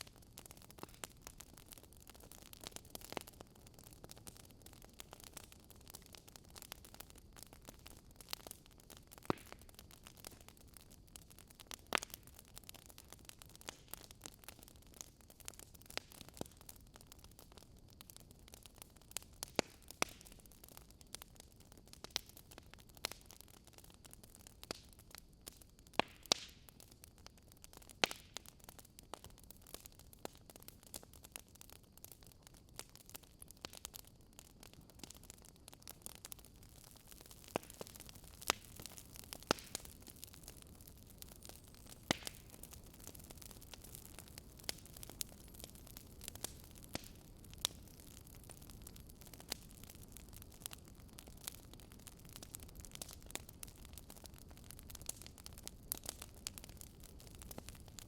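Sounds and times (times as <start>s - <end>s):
sharp fire pops: 0.0s - 14.6s, 18.8s - 20.5s, 25.9s - 28.5s, 32.8s - 58.0s
wood fire crackling: 0.0s - 58.0s.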